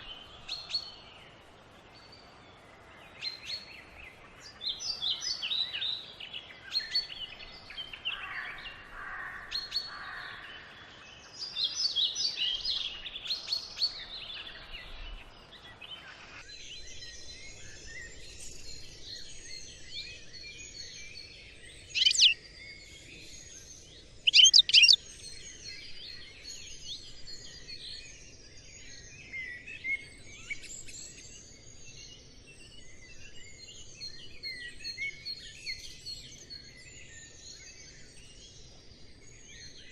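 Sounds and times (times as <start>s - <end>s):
chorus of small birds chirping: 0.0s - 39.9s
loud sharp bird chirps: 21.9s - 22.4s, 24.3s - 25.0s.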